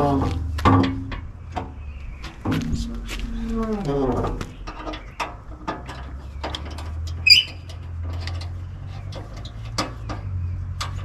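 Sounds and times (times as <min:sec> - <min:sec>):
steady low hum: 0:00.0 - 0:08.8
sharp squeak: 0:07.2 - 0:07.7.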